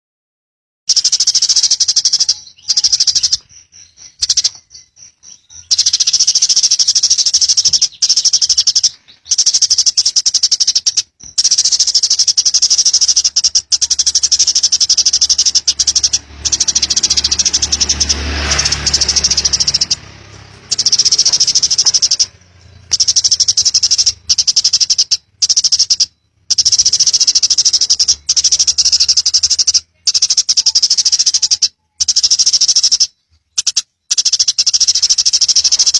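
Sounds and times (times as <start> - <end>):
sparrow chattering trills: 0.9 - 35.9.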